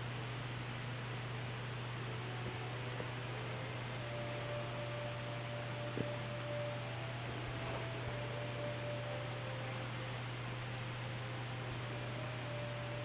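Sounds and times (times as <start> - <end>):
low electrical hum: 0.0 - 13.0
faint high tone: 2.2 - 10.4.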